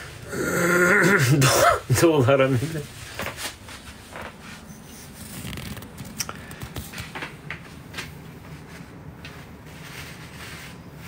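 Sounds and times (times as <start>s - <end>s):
paper rustling: 3.0s - 10.9s.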